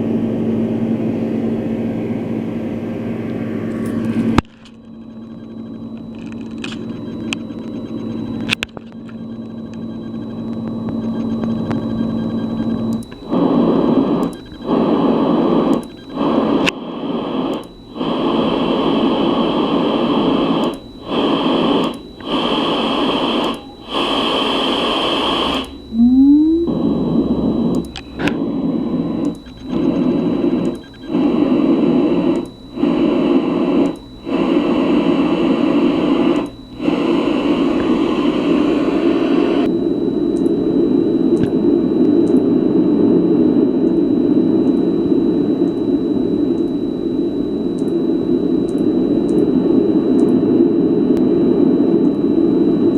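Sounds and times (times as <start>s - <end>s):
white noise machine hiss: 12.6s - 52.9s
short rising chirp: 25.8s - 28.2s.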